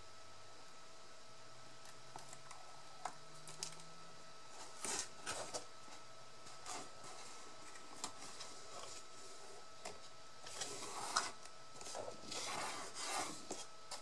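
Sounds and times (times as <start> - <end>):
paper rustling and rubbing: 4.6 - 9.5, 10.4 - 14.0.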